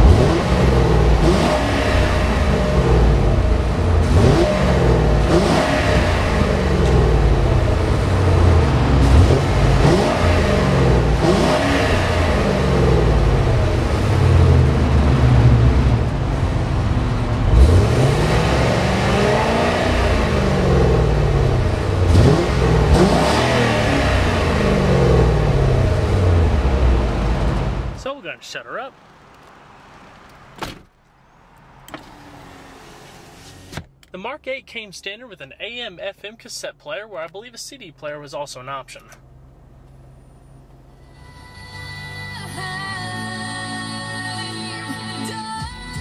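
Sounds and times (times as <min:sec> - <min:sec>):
car engine revving: 0:00.0 - 0:34.7.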